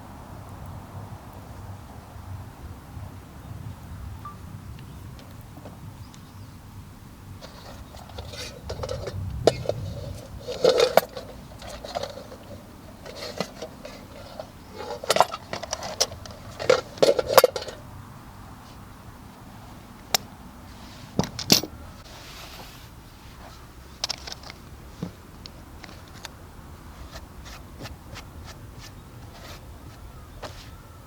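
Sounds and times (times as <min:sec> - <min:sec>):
cookware clinking and knocking: 0:07.4 - 0:17.8.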